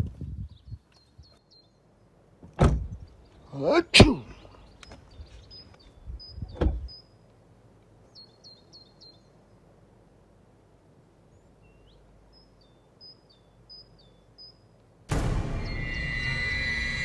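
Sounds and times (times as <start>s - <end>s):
faint outdoor background noise: 0.0s - 15.5s
small birds chirping: 0.4s - 1.8s, 2.8s - 7.2s, 8.0s - 9.5s, 11.3s - 14.7s
dull thump: 2.4s - 3.0s, 6.5s - 6.9s.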